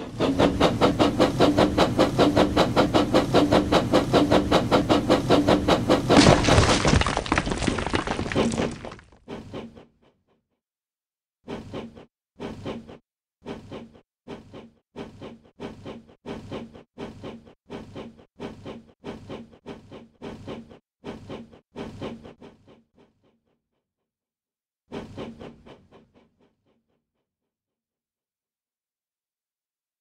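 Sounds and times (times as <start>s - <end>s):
toy steam engine chuffing: 0.0s - 6.2s, 11.5s - 23.2s.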